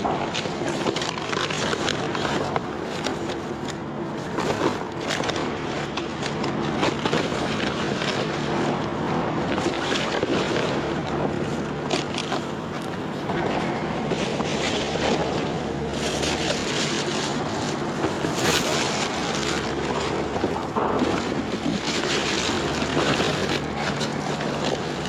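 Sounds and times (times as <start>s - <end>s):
clatters of handled items: 0.0s - 25.0s
plastic and paper rustling: 0.0s - 25.0s
steady low hum: 0.0s - 25.0s.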